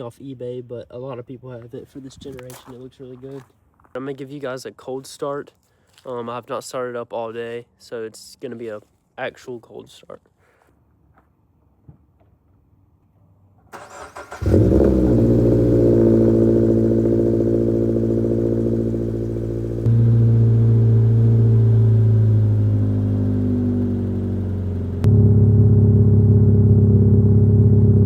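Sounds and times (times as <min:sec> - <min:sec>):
car engine idling: 0:13.8 - 0:28.0.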